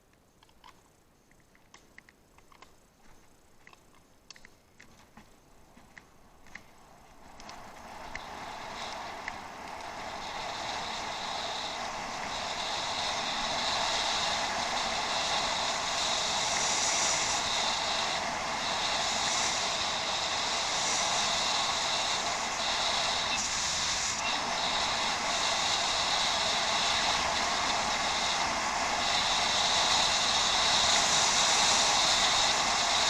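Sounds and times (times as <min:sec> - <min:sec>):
bicycle ticking: 0:01.8 - 0:33.0
tyres and air rushing: 0:06.6 - 0:33.0.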